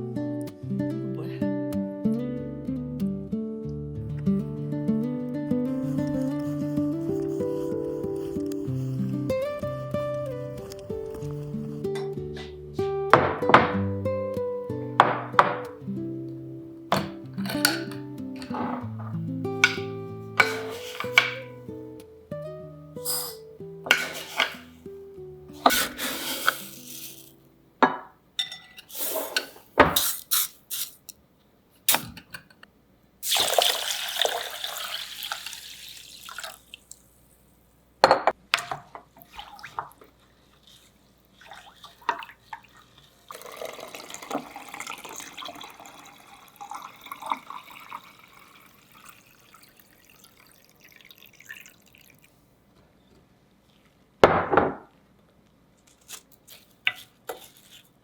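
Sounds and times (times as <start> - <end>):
dishes clinking: 16.9 - 21.6, 23.0 - 24.7, 27.8 - 30.1
tap water running into sink: 17.0 - 21.5, 33.2 - 37.0, 41.4 - 52.3.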